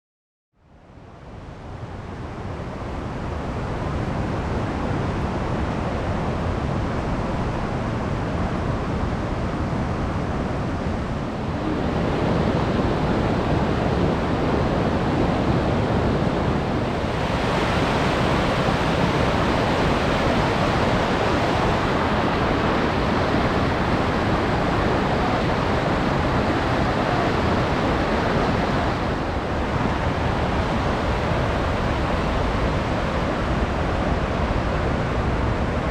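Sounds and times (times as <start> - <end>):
waterfall rushing: 11.4 - 34.8.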